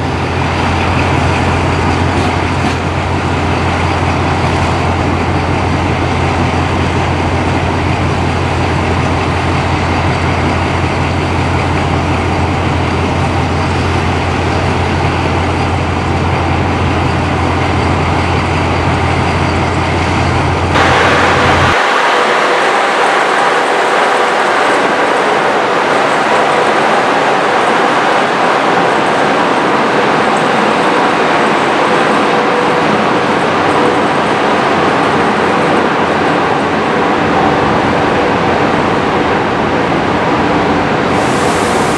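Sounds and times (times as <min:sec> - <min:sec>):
locomotive drone: 0:00.0 - 0:41.9
bright rushing noise: 0:17.6 - 0:39.6, 0:40.8 - 0:41.9.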